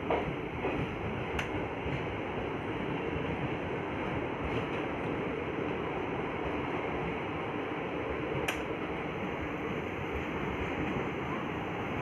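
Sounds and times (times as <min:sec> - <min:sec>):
train coach rumbling: 0:00.0 - 0:12.0
sharp click: 0:08.5 - 0:08.7.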